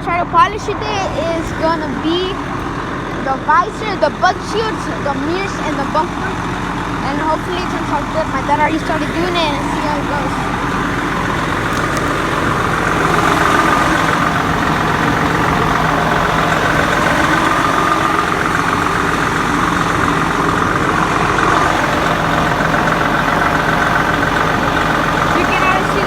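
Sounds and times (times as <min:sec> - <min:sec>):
truck diesel engine idling: 0:00.0 - 0:26.0.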